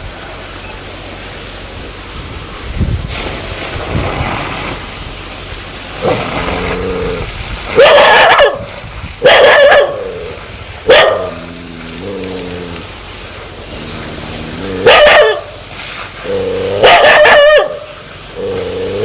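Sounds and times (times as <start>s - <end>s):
dog growling: 6.0s - 7.4s, 9.8s - 15.6s, 16.2s - 17.5s, 18.3s - 19.0s
dog barking aggressively: 6.0s - 11.5s, 13.8s - 15.7s, 16.7s - 19.0s.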